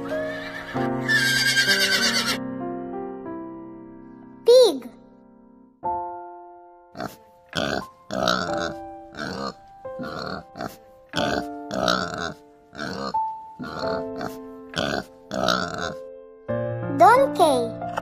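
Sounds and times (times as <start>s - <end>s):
background music with held notes: 0.0s - 18.0s
pig grunting: 7.0s - 16.0s.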